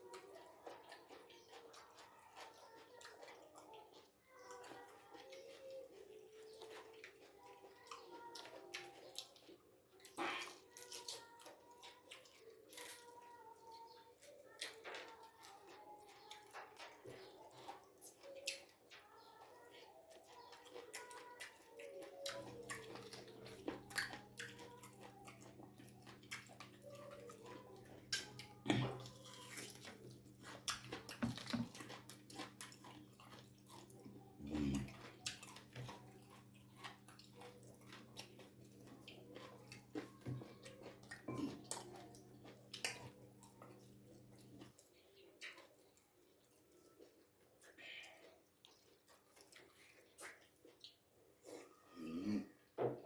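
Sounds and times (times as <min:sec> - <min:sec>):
person chewing food: 0:00.0 - 0:52.7
mouth clicks and wet smacks: 0:47.6 - 0:51.2.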